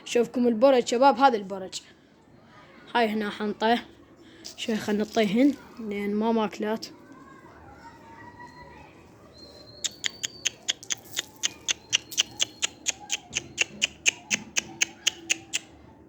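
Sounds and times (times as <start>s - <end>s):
pigeons pecking grain: 9.3s - 15.8s.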